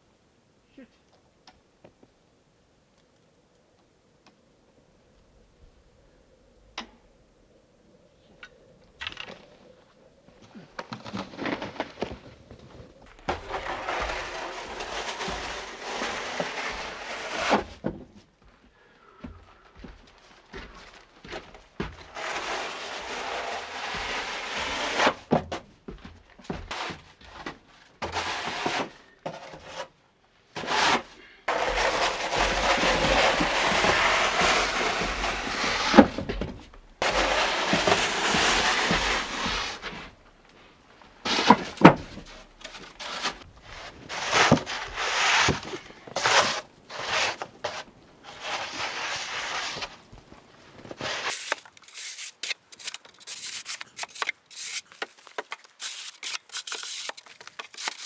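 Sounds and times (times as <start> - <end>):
rubbing and scraping: 13.1 - 17.8, 21.8 - 25.3, 30.6 - 40.2, 41.3 - 50.2, 50.8 - 58.0.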